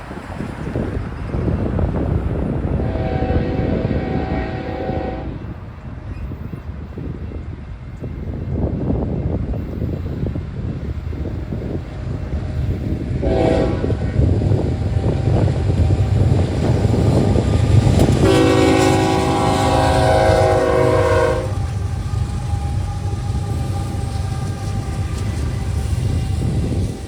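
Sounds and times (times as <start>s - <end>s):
diesel locomotive rumble: 0.0s - 27.0s
train horn blasts: 2.8s - 5.5s, 13.2s - 14.3s, 17.1s - 21.7s.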